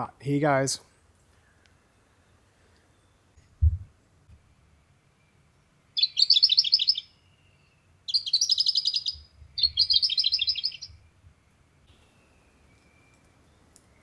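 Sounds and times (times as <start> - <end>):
songbird trilling: 6.0 - 7.2, 8.1 - 11.0.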